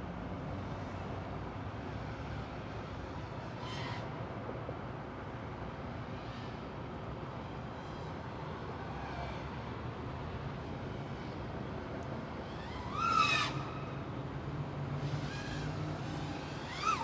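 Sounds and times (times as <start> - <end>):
quadcopter motors whining: 15.0 - 17.0.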